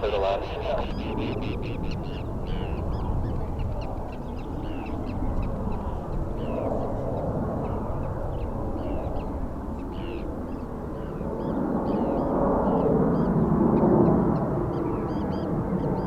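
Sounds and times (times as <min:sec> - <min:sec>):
steady low rumble: 0:00.0 - 0:10.0
birds chirping: 0:00.0 - 0:16.0.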